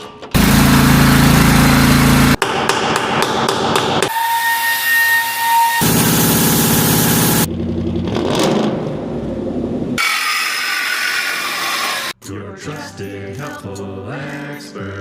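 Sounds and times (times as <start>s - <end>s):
engine running: 0.3s - 2.4s, 5.8s - 10.0s
loud mechanical roar: 0.4s - 2.4s, 5.8s - 10.6s.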